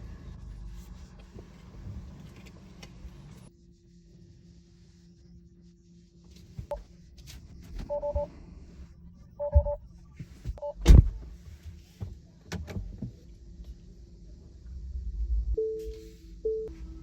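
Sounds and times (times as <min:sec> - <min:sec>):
two-note electronic beeps: 0:07.9 - 0:08.3, 0:09.4 - 0:09.8
loud thump: 0:10.8 - 0:11.2.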